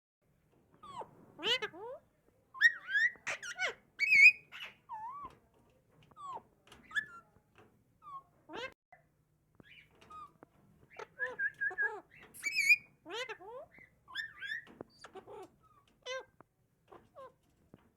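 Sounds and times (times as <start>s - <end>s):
parakeet squawking and whistling: 2.6s - 4.8s, 10.9s - 15.2s.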